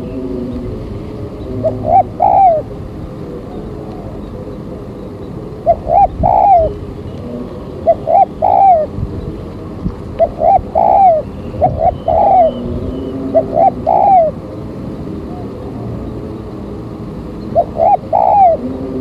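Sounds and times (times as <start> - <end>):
dove cooing: 0.0 - 4.8, 5.6 - 9.0, 10.2 - 14.4, 17.4 - 19.0.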